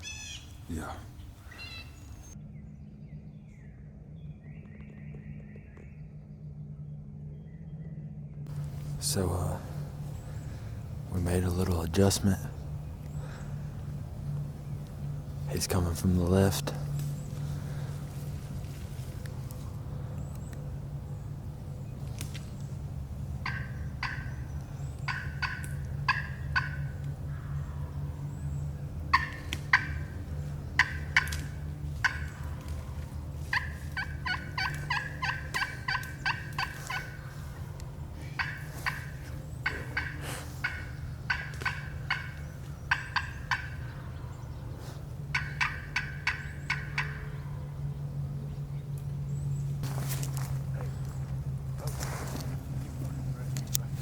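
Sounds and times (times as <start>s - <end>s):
turkey calling: 0.0s - 2.4s, 8.5s - 48.9s
low hum: 0.0s - 54.0s.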